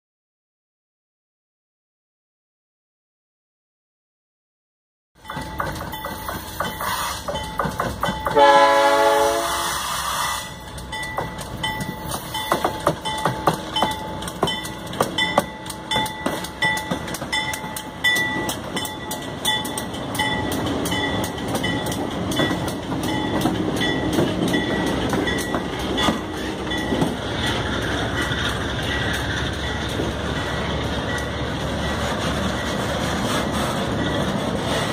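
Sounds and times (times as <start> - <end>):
wheels clicking over rail joints: 5.2 - 9.2, 10.5 - 34.9
train rumble: 5.2 - 34.9
train horn blast: 6.8 - 7.3, 8.3 - 10.6.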